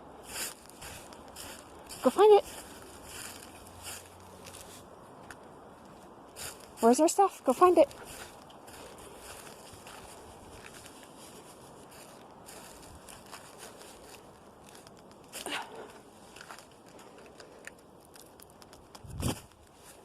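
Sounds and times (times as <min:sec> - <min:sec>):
footsteps on rocky ground: 0:00.3 - 0:20.0.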